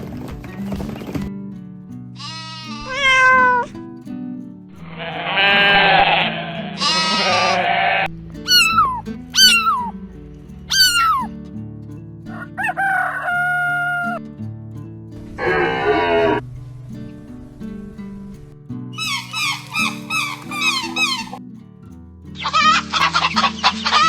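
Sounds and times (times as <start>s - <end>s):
farm animal calls: 2.2s - 3.7s, 4.8s - 9.9s, 10.7s - 11.3s, 12.3s - 14.2s, 15.4s - 16.4s, 19.0s - 21.4s, 22.4s - 24.0s.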